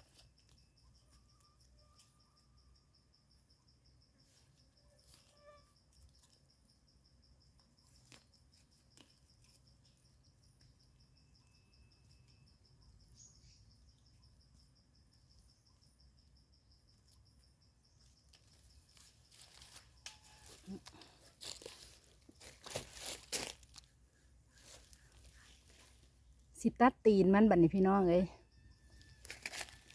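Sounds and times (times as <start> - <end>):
cricket trilling: 0.0 - 29.9
leaf litter crackling and rustling: 19.0 - 23.9.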